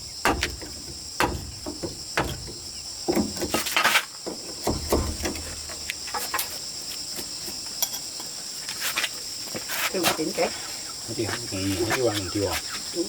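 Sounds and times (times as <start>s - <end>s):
knocks and clatter from work: 0.0s - 6.3s
shrill insect chorus: 0.0s - 13.0s
scraping rustle: 8.6s - 10.6s.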